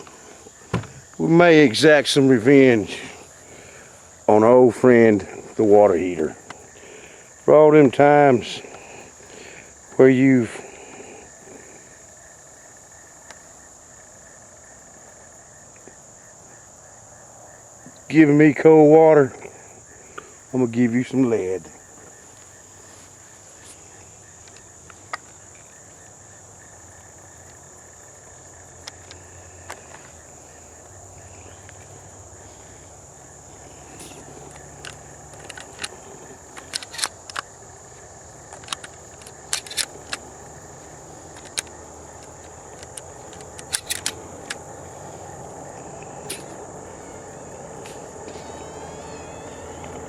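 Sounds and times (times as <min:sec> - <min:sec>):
crickets chirping: 0:00.0 - 0:50.0
sharp clicks and rattles: 0:34.0 - 0:44.7.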